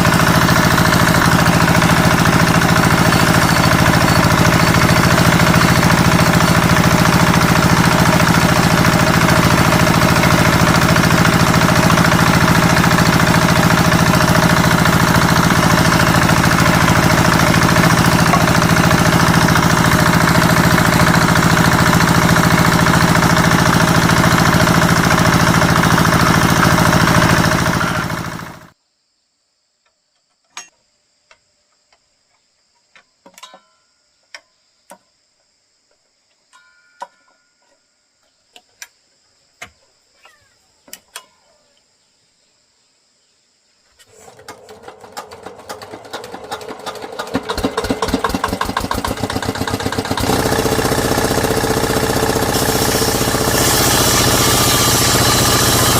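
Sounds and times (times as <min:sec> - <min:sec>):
power tool motor running: 0:00.0 - 0:28.7, 0:44.1 - 0:55.9
faint high insect hum: 0:28.8 - 0:44.4.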